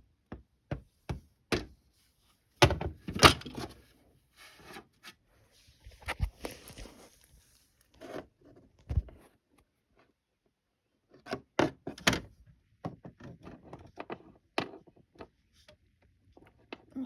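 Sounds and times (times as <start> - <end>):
handling knocks and thumps: 8.9 - 9.2.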